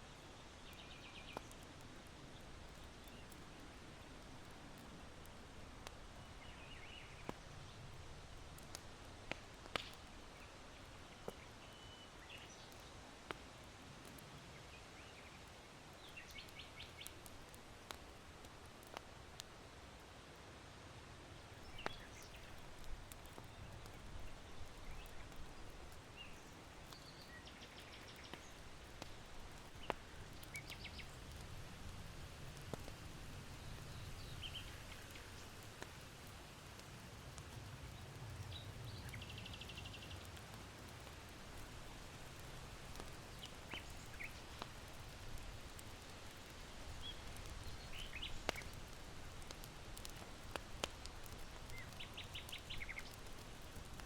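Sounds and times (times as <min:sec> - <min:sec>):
charcoal crackling and popping: 0:00.0 - 0:54.0
small birds chirping: 0:00.1 - 0:05.0, 0:05.8 - 0:07.9, 0:09.7 - 0:13.1, 0:14.1 - 0:18.1, 0:21.4 - 0:31.5, 0:32.7 - 0:36.0, 0:37.6 - 0:54.0.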